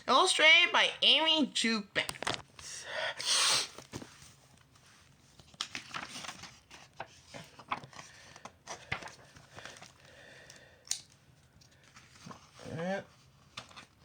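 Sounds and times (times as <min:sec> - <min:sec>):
book pages rustling: 0:03.7 - 0:10.1, 0:11.2 - 0:14.0.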